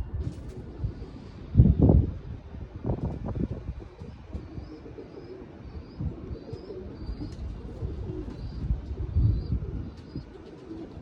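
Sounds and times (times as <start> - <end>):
wind buffeting microphone: 0.0 - 11.0
pigeons cooing: 3.8 - 11.0.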